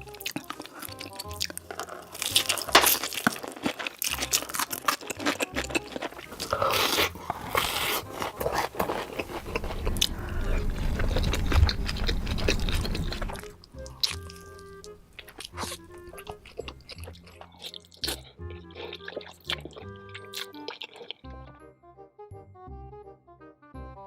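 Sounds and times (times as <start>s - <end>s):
crunchy bites and wet chewing: 0.0s - 21.5s
low rumble: 9.3s - 13.6s.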